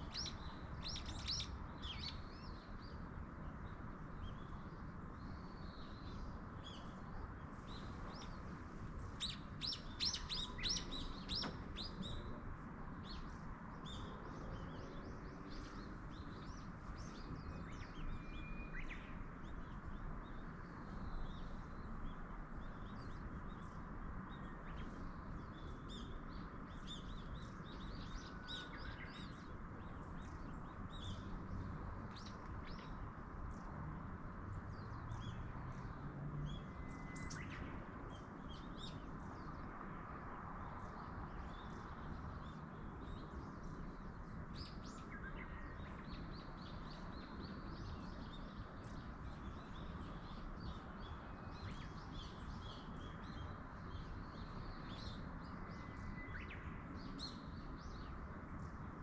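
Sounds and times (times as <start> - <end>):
small birds chirping: 0.0 - 39.8
wind through trees: 0.0 - 59.0.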